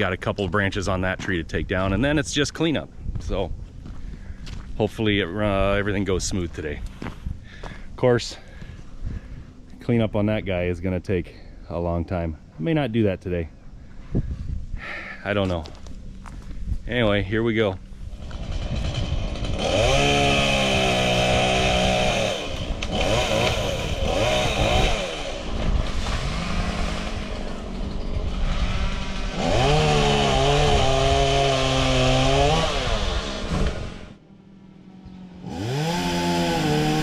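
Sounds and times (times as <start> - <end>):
chainsaw revving: 18.1 - 34.2, 35.2 - 37.0.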